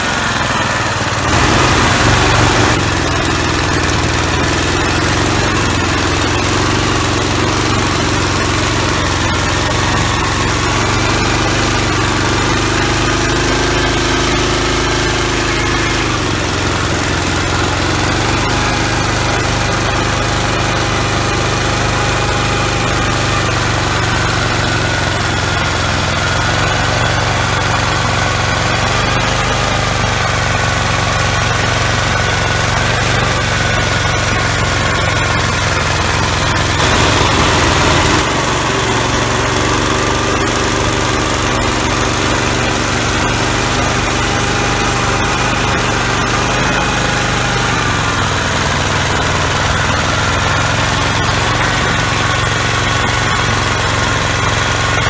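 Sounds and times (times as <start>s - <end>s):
loud rushing noise: 0.0s - 3.8s, 36.8s - 40.0s
walk-behind tractor engine running: 0.0s - 55.0s.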